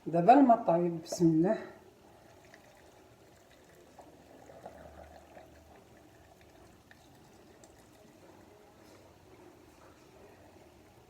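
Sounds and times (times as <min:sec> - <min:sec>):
water pouring into a jar: 0:02.0 - 0:09.2.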